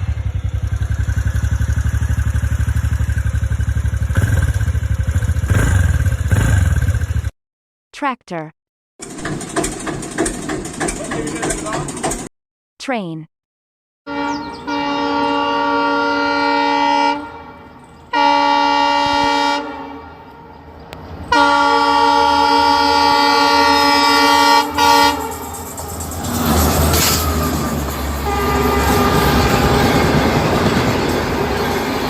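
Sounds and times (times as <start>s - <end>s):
train rumbling clatter: 9.0s - 12.3s, 24.6s - 32.0s
train horn blasts: 14.1s - 32.0s.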